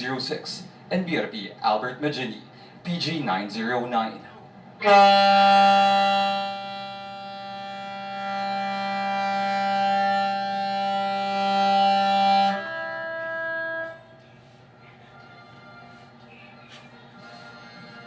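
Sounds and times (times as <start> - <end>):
quieter horn tone: 4.8 - 14.5
ship's horn long blast: 4.8 - 14.5.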